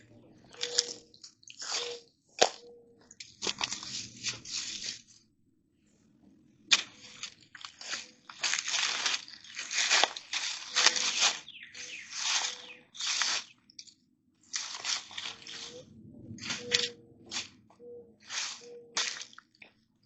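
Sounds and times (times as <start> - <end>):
sticks crunching and snapping: 0.5 - 2.6, 6.7 - 13.9, 14.5 - 15.8, 16.4 - 17.5, 18.2 - 19.6.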